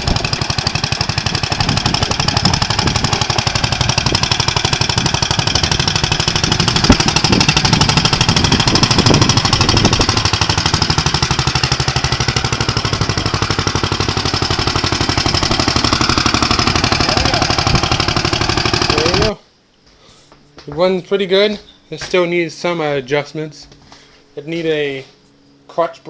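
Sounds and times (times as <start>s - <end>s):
tractor engine chugging: 0.0s - 19.4s.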